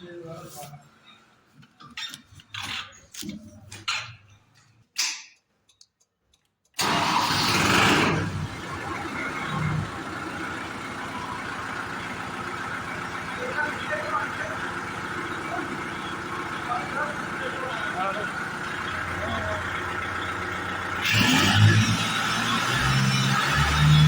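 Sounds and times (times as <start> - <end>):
diesel engine idling: 6.8 - 24.0
diesel tractor engine starting: 6.8 - 24.0.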